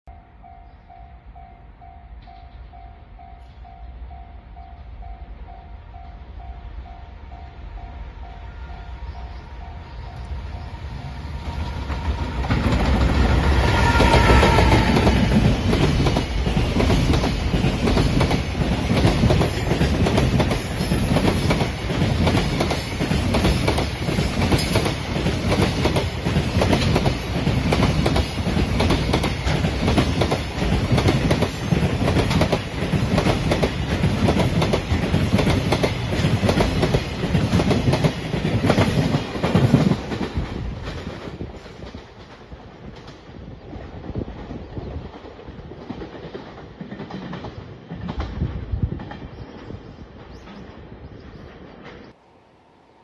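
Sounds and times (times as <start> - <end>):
train rumble: 0.4 - 52.2
train wheels clicking over rail joints: 11.5 - 52.2.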